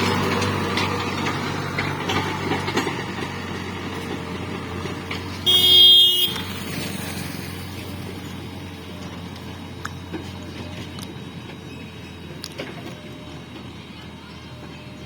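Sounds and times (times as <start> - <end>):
tractor engine running: 0.0 - 15.0
vehicle horn: 5.4 - 6.6.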